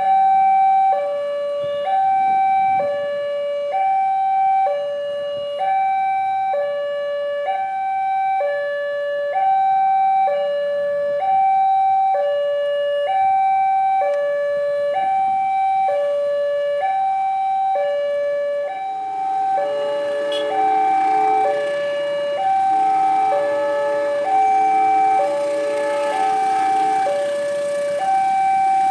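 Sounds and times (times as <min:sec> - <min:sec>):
lower alarm tones: 0:00.0 - 0:28.9
level-crossing alarm two-tone signal: 0:16.8 - 0:28.9.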